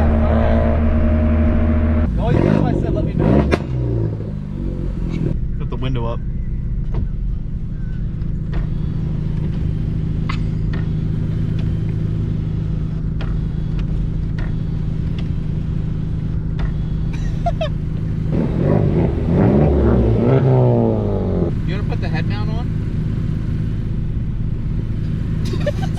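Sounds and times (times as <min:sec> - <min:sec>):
car engine revving from inside cabin: 0:00.0 - 0:05.4, 0:18.3 - 0:21.5.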